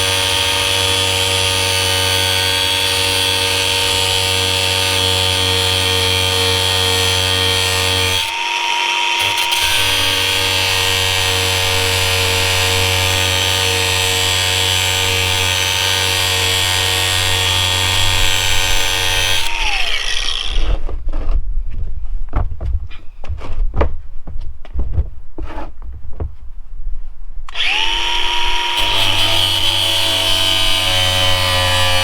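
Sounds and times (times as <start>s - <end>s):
grinder cutting steel chain: 0.0s - 20.8s, 27.5s - 32.0s.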